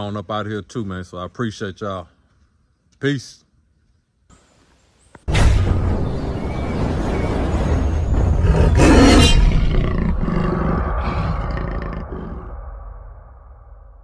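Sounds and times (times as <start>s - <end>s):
loud roar with deep rumble: 8.0s - 13.7s.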